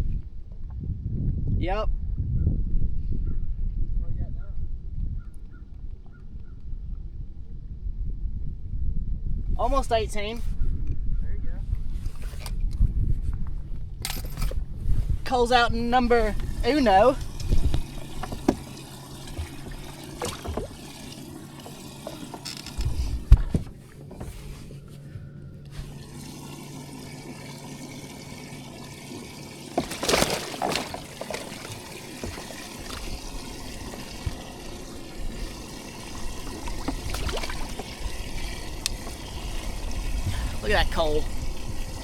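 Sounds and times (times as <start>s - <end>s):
steady low hum: 1.3s - 42.0s
water trickling and splashing: 15.3s - 25.0s, 25.7s - 42.0s
noisy splash: 29.2s - 40.9s.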